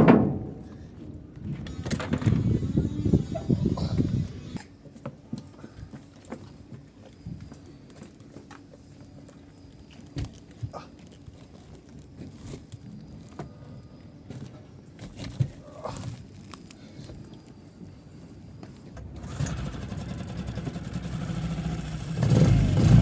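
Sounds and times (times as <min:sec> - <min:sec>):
engine running: 0:01.4 - 0:04.7, 0:19.1 - 0:23.0.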